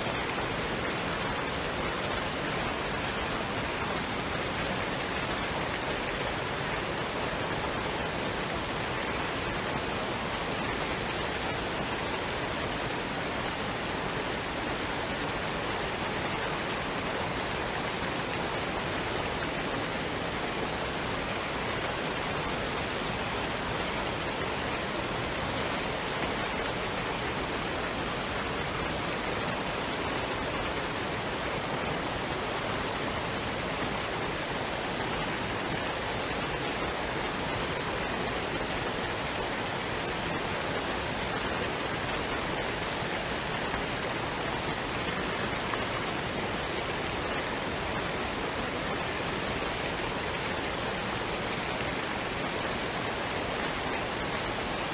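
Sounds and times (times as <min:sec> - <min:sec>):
waterfall and stream rushing: 0:00.0 - 0:54.9.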